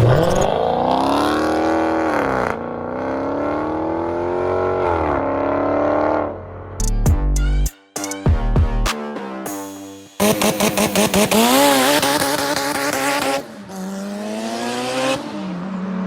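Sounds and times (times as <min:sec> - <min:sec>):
car engine accelerating: 0:10.2 - 0:16.0.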